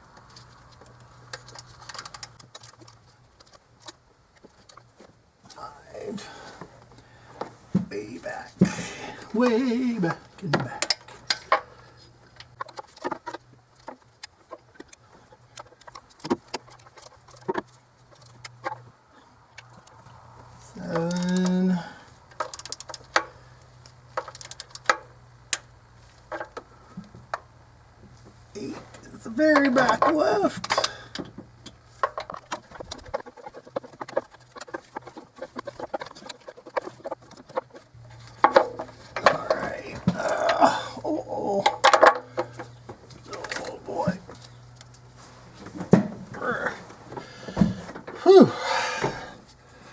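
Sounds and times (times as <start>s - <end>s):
ratchet wrench clicking: 21.0s - 21.5s
ratchet wrench clicks and knocks: 22.3s - 23.4s, 24.1s - 25.7s.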